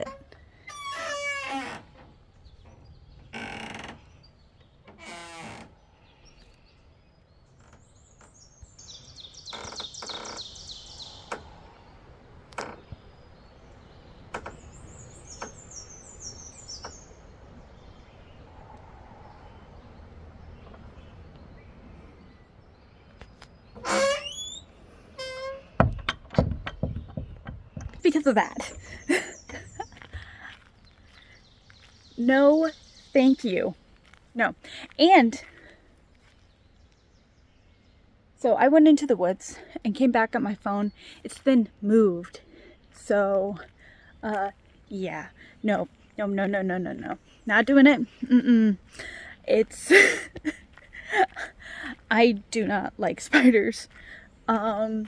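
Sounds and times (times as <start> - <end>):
birds trilling: 7.5 - 33.8, 42.4 - 52.1
light knocks: 25.8 - 28.1.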